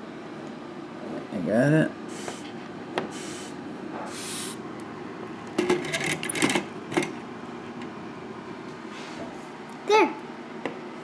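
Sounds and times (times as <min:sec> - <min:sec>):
solder flux sizzling: 0:02.1 - 0:04.6.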